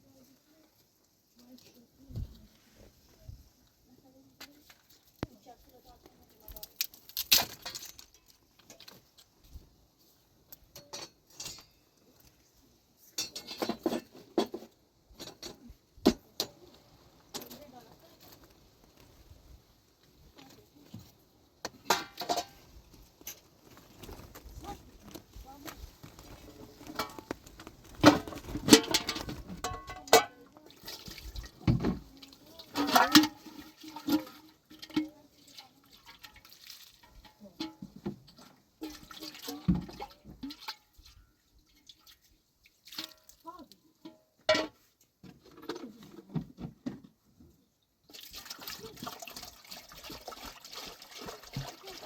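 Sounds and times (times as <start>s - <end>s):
water splashing and pouring: 27.0s - 37.3s, 38.8s - 43.5s, 48.1s - 52.0s.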